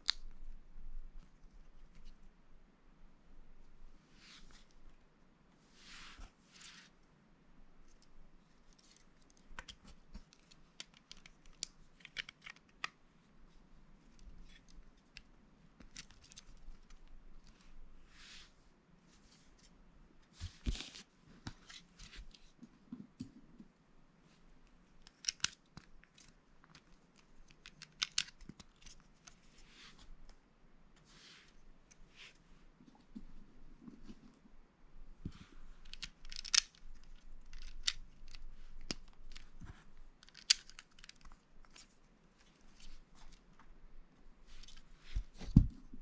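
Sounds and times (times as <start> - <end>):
plastic pieces clicking: 25.0 - 25.6, 27.5 - 28.6, 35.9 - 39.5, 40.2 - 41.8.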